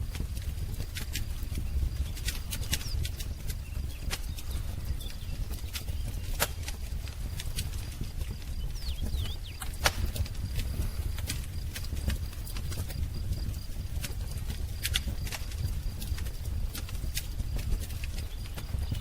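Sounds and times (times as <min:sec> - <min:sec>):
wood fire crackling and popping: 0:00.0 - 0:19.0
bird chirps: 0:08.4 - 0:10.2.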